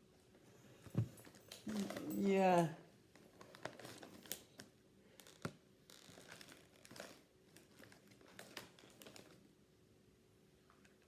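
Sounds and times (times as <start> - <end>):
snack bag crinkling: 3.3 - 9.4.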